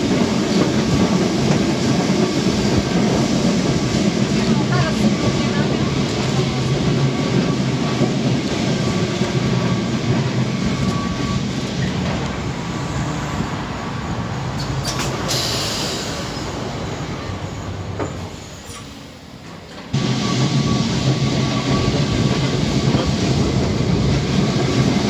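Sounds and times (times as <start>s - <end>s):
tram rumbling and rattling: 0.0s - 25.0s
brief hiss: 14.6s - 16.6s.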